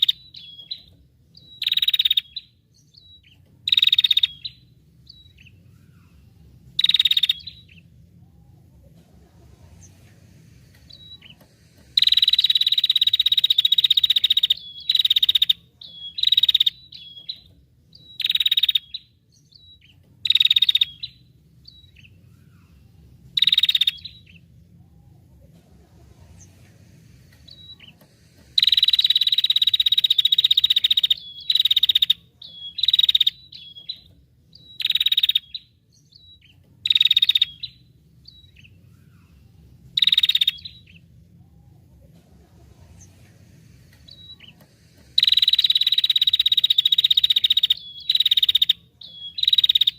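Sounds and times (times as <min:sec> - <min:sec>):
songbird buzzy rattling trills: 0:00.0 - 0:08.7, 0:09.7 - 0:24.5, 0:27.2 - 0:41.9, 0:42.6 - 0:49.9.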